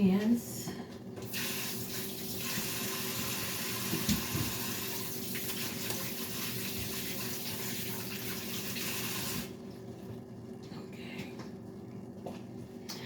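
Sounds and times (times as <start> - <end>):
faucet running: 1.3 - 9.6.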